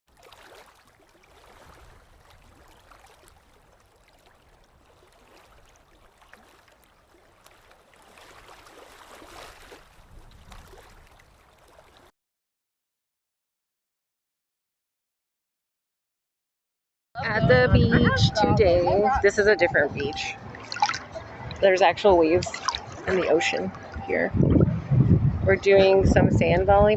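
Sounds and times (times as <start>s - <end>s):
wind rumbling on microphone: 1.3s - 3.0s, 8.2s - 11.4s, 17.2s - 26.9s.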